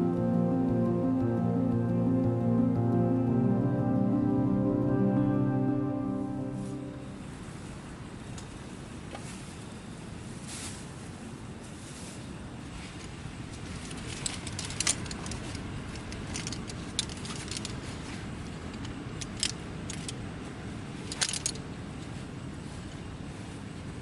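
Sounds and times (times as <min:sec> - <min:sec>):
camping gear clinking and rattling: 0:13.7 - 0:18.0, 0:21.1 - 0:21.7.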